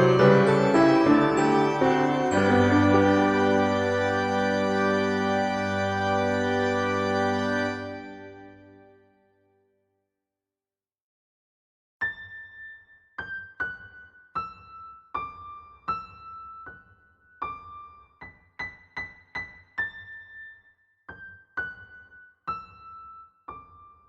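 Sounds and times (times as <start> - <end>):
slow keyboard melody: 0.0 - 9.1.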